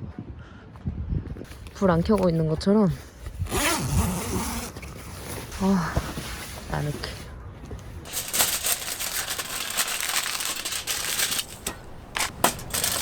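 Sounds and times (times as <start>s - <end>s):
packaging crinkling and rustling: 8.1s - 13.0s.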